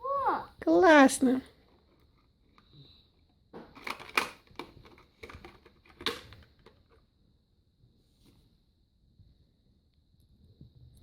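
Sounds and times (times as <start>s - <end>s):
plastic toys clicking and clattering: 3.7s - 7.0s.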